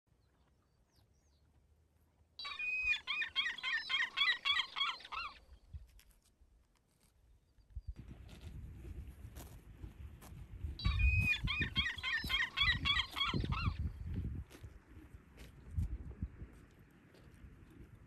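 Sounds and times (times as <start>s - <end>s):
bird warbling song: 2.4s - 5.7s, 10.8s - 14.1s
rustling crunching noise: 5.5s - 7.3s, 8.0s - 18.0s.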